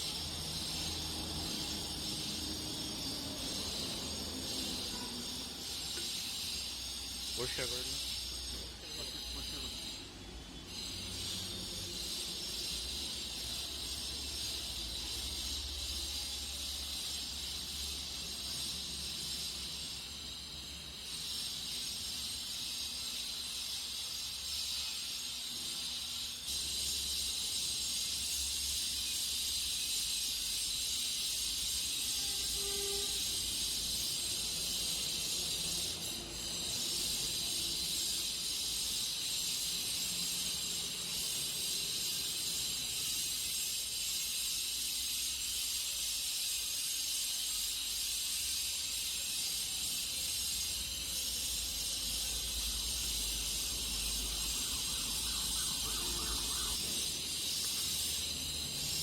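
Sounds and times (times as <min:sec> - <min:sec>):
high-pitched hiss: 0:00.0 - 0:59.0.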